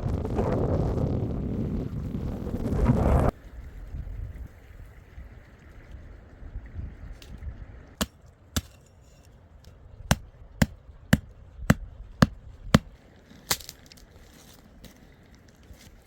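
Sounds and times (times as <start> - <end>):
axe chopping wood: 8.0 - 8.8, 10.1 - 13.7.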